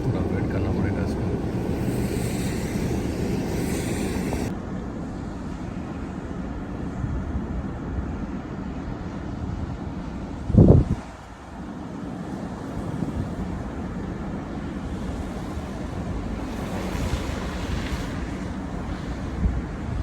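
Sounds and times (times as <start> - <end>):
tyres and engine rumble: 0.0 - 7.0, 11.3 - 20.0.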